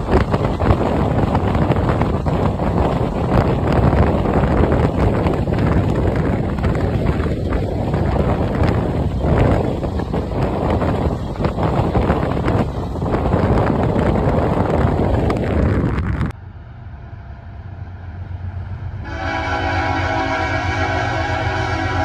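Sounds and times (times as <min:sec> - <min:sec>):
approaching train rumble: 0:00.0 - 0:22.0
freight train wheels rumbling: 0:00.0 - 0:22.0
locomotive air horn chord: 0:19.0 - 0:22.0.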